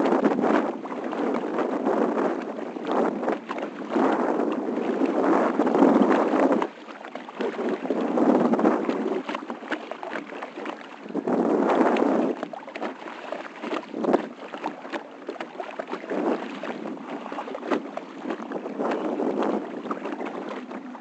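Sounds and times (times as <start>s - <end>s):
water splashing around kayak: 0.0s - 21.0s.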